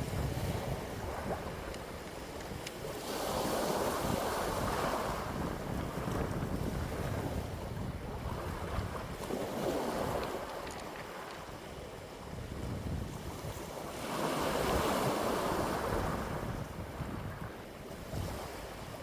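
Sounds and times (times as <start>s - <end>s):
wind gusts rushing: 0.0s - 10.3s
wind buffeting microphone: 0.0s - 19.0s.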